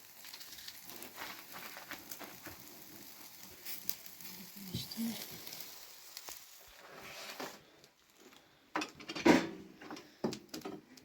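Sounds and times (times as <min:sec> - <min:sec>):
low hiss: 0:00.0 - 0:08.6
dishes and utensils clattering: 0:08.8 - 0:10.9.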